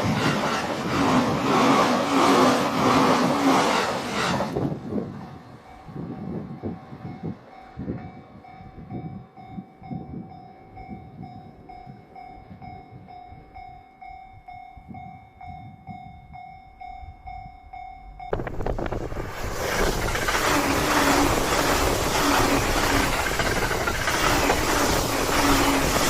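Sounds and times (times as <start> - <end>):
train rushing past: 0.0 - 8.5, 18.2 - 26.0.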